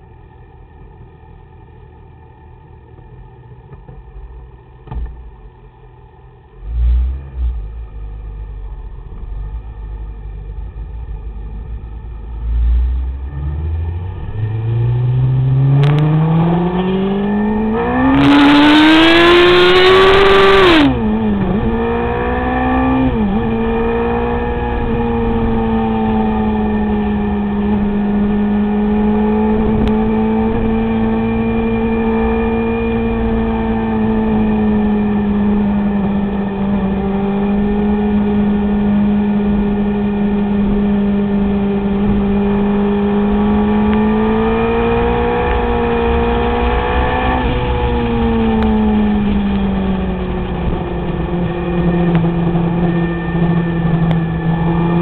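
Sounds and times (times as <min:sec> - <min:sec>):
motorcycle engine revving: 0:11.0 - 0:55.0.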